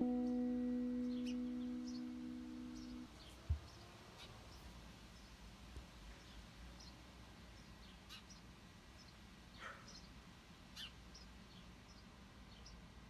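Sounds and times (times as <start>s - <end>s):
bird chirps: 0.0s - 3.8s.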